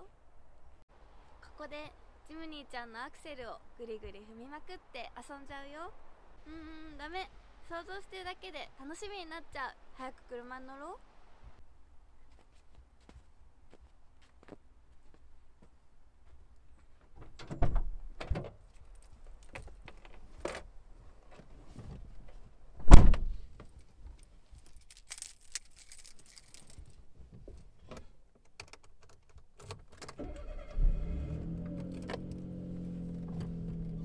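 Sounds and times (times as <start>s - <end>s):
loud thump: 22.8s - 23.4s
car engine starting and idling: 30.1s - 34.0s.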